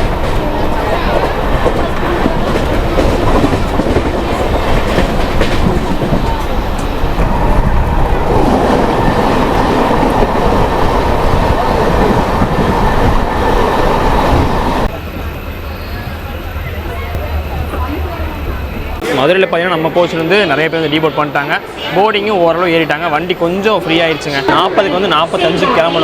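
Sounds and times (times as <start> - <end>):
train wheels rumbling and clattering: 0.0 - 19.4.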